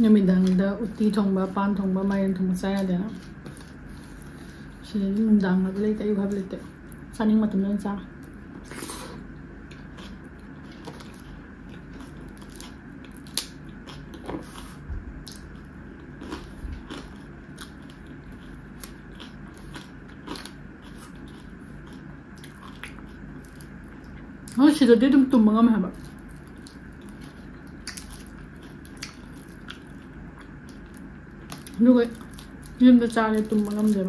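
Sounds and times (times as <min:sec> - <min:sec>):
close chewing of rice: 0:02.6 - 0:05.4, 0:08.2 - 0:24.6, 0:25.9 - 0:34.0.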